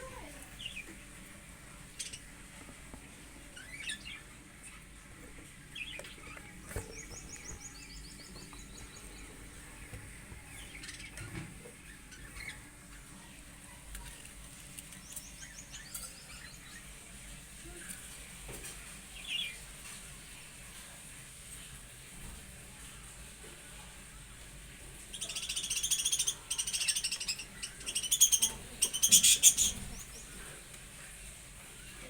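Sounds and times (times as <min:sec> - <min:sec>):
budgerigars chirping: 0:25.2 - 0:30.3.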